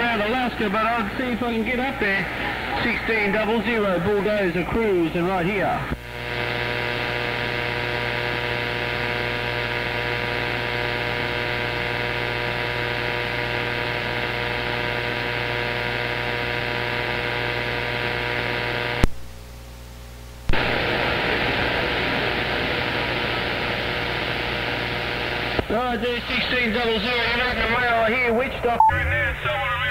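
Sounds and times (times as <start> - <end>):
radio hum: 0.0 - 29.9
radio static hiss: 0.0 - 29.9
radio click: 18.1 - 19.3, 20.4 - 25.7.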